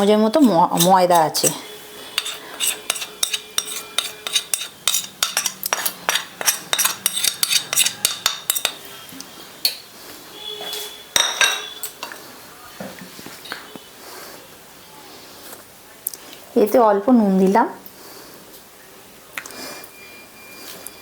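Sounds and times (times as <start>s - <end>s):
spoon clinking on a plate: 2.2s - 8.8s, 11.2s - 12.2s.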